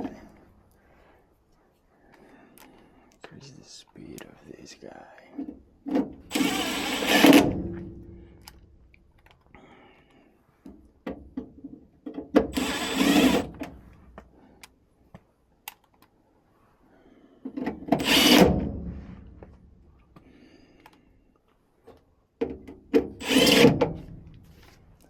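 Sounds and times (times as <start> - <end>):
tool scraping: 5.9 - 8.5, 12.5 - 14.1, 17.8 - 19.5, 23.0 - 25.0.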